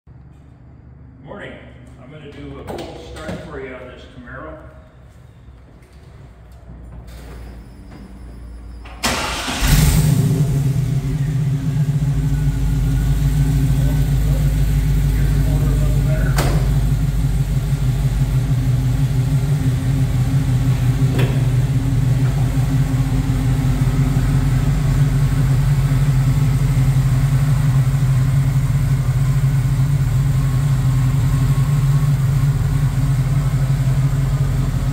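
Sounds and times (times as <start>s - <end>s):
car engine idling: 9.0s - 34.9s.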